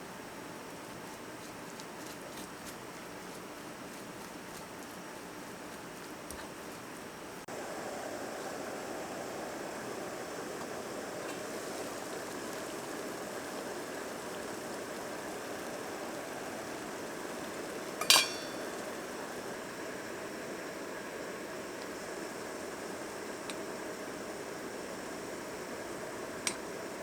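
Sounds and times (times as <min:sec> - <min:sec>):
steady hiss: 0:00.0 - 0:27.0
tableware clink: 0:18.0 - 0:18.7.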